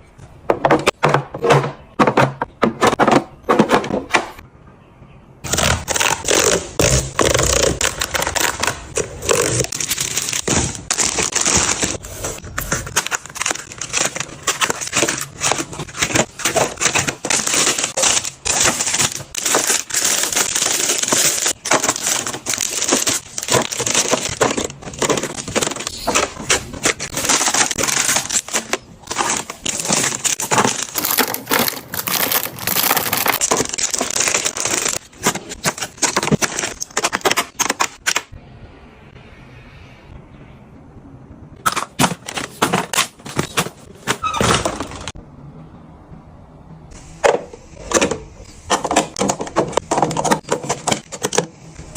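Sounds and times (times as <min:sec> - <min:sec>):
plastic packaging crinkling: 0:05.5 - 0:38.2.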